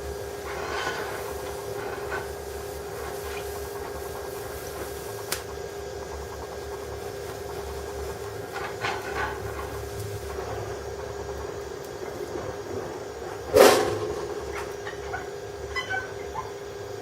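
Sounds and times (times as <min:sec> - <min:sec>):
machine hum with hiss: 0:00.0 - 0:17.0.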